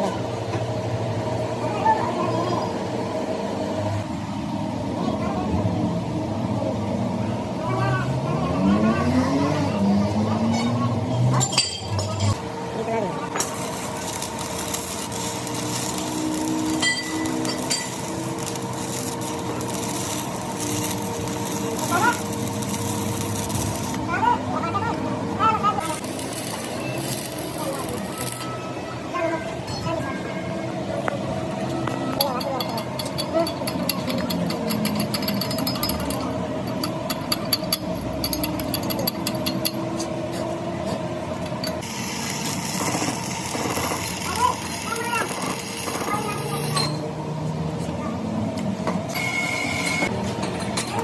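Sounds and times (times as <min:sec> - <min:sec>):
workshop machinery humming: 0:00.0 - 0:51.0
sharp metallic clinks: 0:14.2 - 0:21.1, 0:32.2 - 0:40.1.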